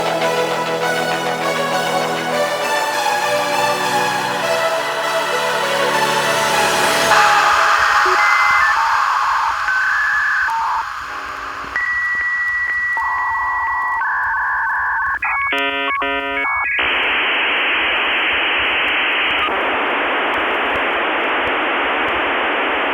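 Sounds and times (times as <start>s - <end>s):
static hiss: 4.9s - 22.9s
warbling electronic chirps: 6.7s - 17.0s
electronic beeping tones: 7.1s - 17.0s.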